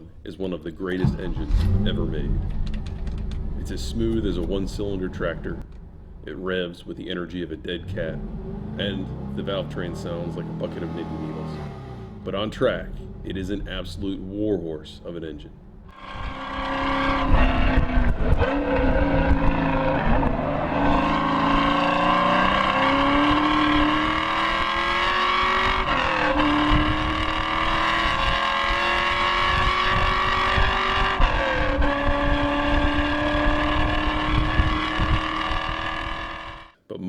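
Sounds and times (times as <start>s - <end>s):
car engine accelerating hard: 0.8s - 36.7s.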